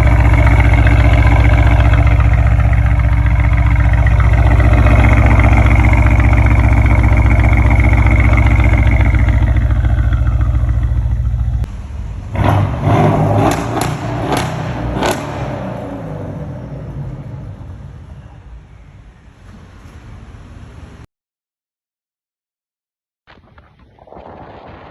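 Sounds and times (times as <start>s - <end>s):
loud car engine running: 0.0s - 18.8s
short engine revs: 12.2s - 18.1s.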